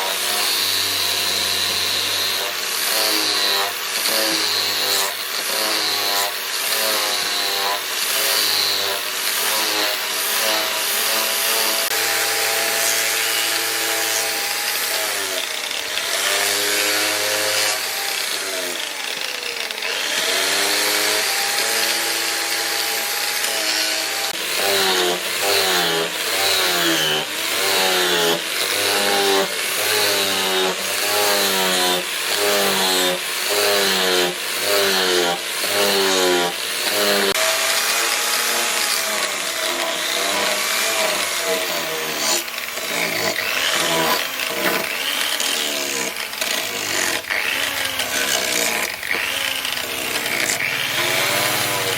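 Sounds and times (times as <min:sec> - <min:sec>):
grinder motor whine: 0:08.7 - 0:32.5, 0:35.3 - 0:51.9.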